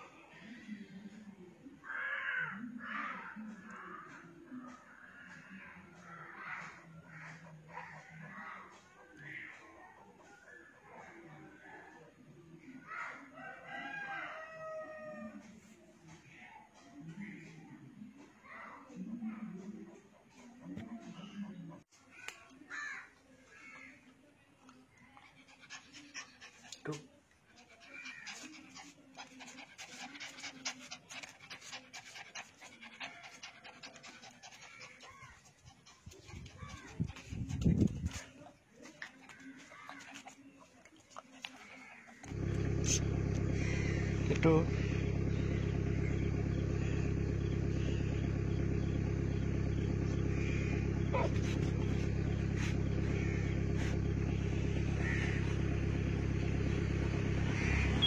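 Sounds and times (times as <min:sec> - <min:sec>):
fast faint panting: 0:05.8 - 0:11.3, 0:24.8 - 0:44.2, 0:50.1 - 0:55.8
vehicle engine running: 0:27.6 - 0:40.4, 0:41.5 - 0:58.0.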